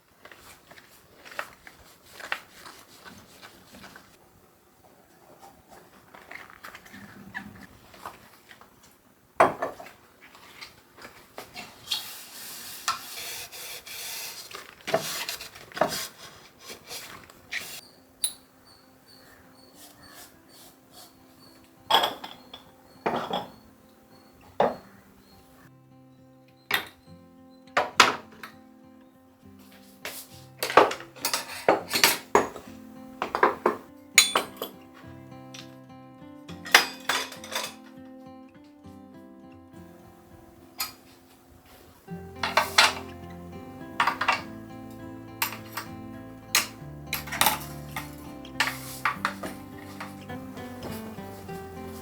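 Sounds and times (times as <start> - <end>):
objects knocking and set down: 9.4 - 10.0, 21.9 - 23.6, 30.6 - 34.8, 36.6 - 37.9, 42.4 - 43.3, 44.0 - 44.6, 45.4 - 46.0, 46.6 - 52.0
rubbing noise: 11.8 - 17.8
soft background music: 17.8 - 52.0
dishes and cutlery clinking: 21.0 - 23.7, 30.0 - 35.0, 36.5 - 38.0, 42.2 - 44.6, 45.3 - 52.0.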